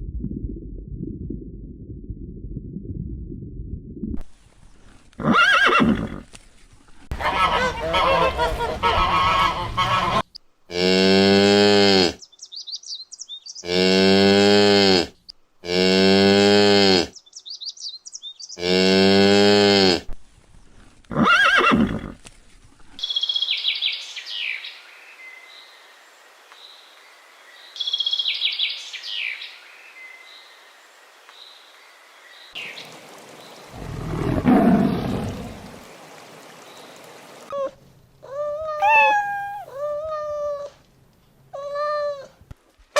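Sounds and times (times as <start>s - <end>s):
high-pitched animal chirps: 38.4s - 40.6s.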